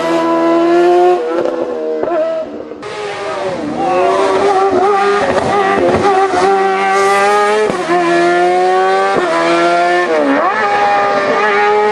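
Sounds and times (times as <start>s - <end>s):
race car engine upshifting: 0.0s - 11.9s.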